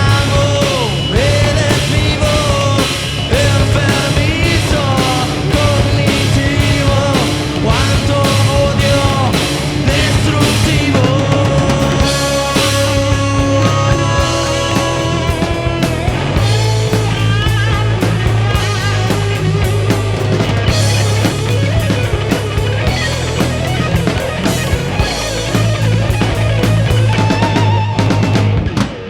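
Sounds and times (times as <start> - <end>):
bass guitar: 0.0 - 29.0
drum kit: 0.0 - 29.0
electric guitar lines: 0.0 - 29.0.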